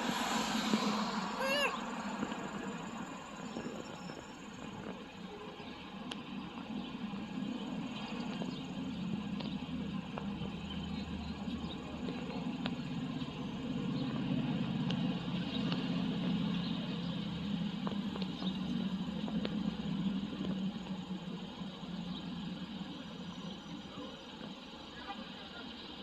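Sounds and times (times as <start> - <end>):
vehicle engine idling hum: 0.0 - 26.0
faint ticks: 6.0 - 6.4, 8.0 - 11.0, 19.2 - 21.8.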